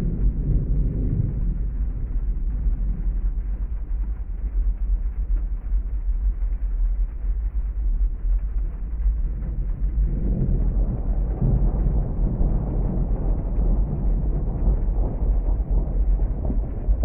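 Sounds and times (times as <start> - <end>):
heavy rain rumble: 0.0 - 17.0.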